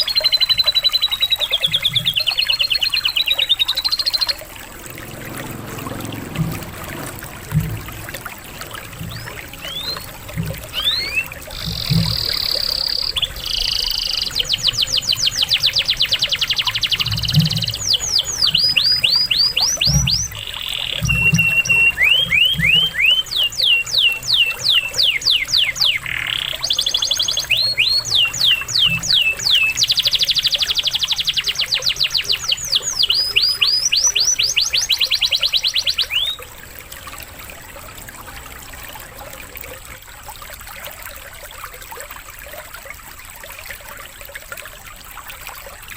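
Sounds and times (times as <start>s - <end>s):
canary singing trills: 0.0s - 5.2s, 8.4s - 37.3s
trickle of running water: 0.0s - 45.9s.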